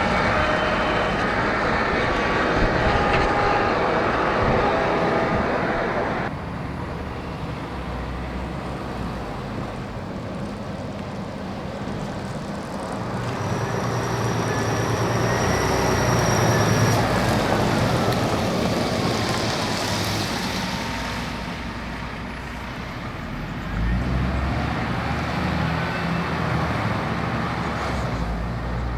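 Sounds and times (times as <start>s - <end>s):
faint falling whine: 0.0s - 6.3s
vehicle driving past: 0.0s - 6.3s.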